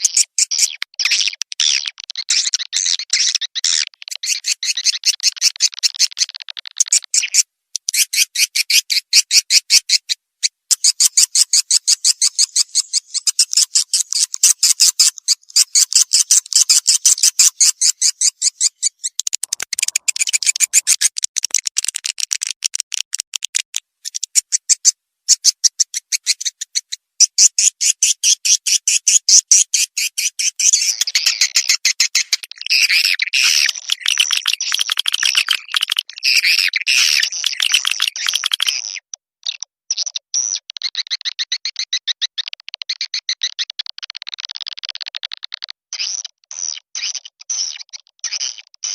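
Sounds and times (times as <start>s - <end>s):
swiftlet clicking chirps: 10.7s - 22.6s.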